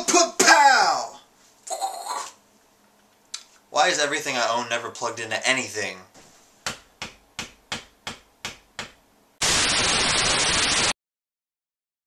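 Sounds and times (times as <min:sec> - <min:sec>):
sharp taps: 0:06.6 - 0:09.0
loud static hiss: 0:09.3 - 0:11.0.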